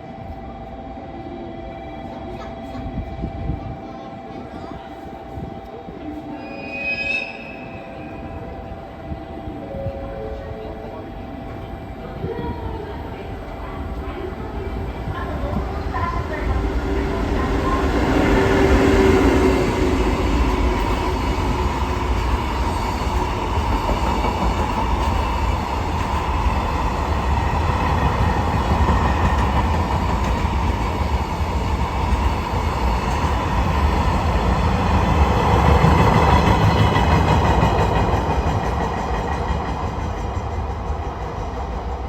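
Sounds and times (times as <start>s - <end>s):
train wheels rumbling over rails: 8.6s - 42.0s.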